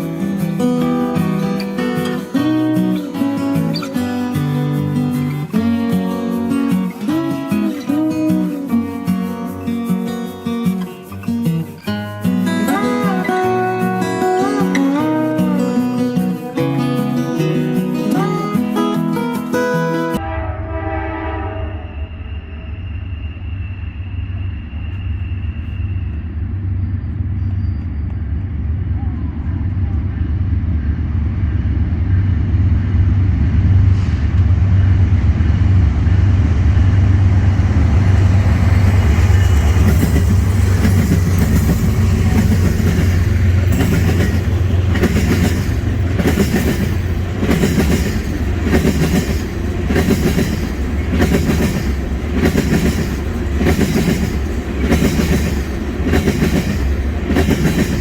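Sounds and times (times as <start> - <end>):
train engine rumble: 20.2 - 58.0
clickety-clack of wheels on rails: 22.6 - 58.0.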